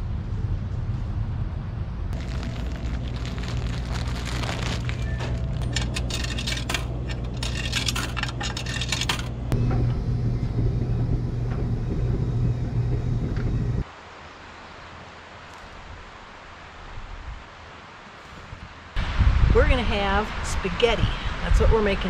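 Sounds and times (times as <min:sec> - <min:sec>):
machine hum: 0:01.9 - 0:13.8
metallic clinking and clicking: 0:05.2 - 0:09.5
faint outdoor hiss: 0:13.8 - 0:22.0.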